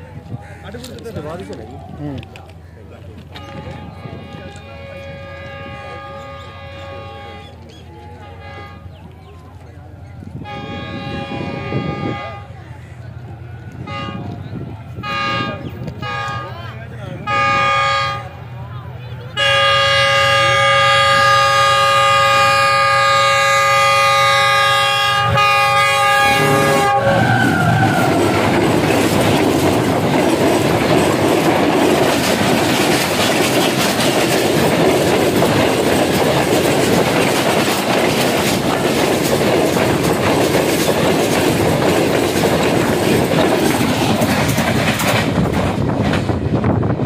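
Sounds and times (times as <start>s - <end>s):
locomotive horn blast: 3.3s - 9.2s, 10.4s - 12.7s, 13.8s - 16.6s, 17.2s - 18.5s, 19.3s - 28.5s
train wheels clattering over rails: 19.3s - 47.0s.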